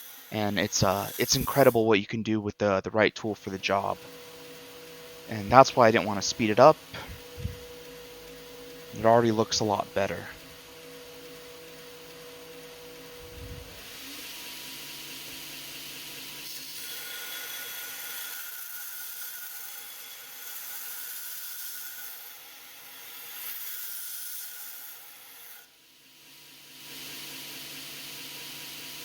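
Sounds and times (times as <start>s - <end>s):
blade grinding on grinder: 0.0s - 1.8s, 16.4s - 25.7s
grinder motor hum: 0.0s - 1.8s.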